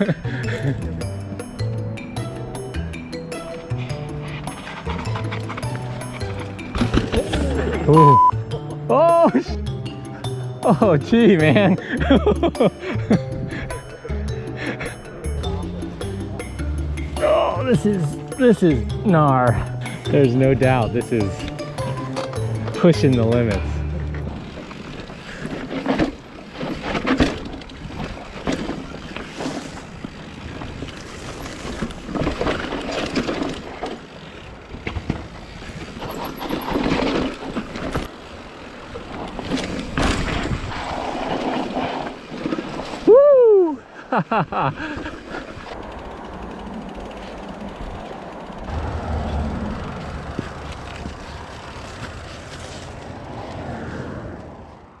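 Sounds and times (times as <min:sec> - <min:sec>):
bike tyres skidding on dirt: 0:00.0 - 0:08.1, 0:10.6 - 0:44.0, 0:44.6 - 0:55.0
bike knocks and rattles: 0:04.1 - 0:07.9, 0:17.7 - 0:43.0.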